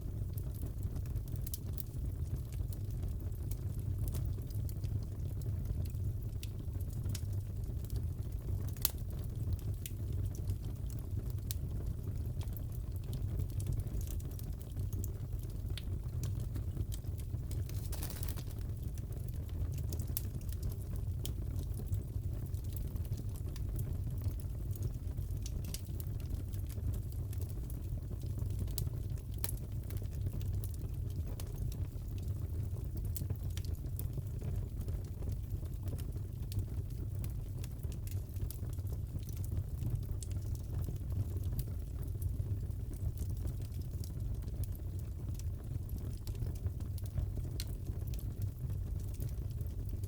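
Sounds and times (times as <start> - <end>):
fire pops and snaps: 0.2 - 50.0
fireplace crackling: 7.9 - 11.8, 12.5 - 29.6, 35.4 - 50.0.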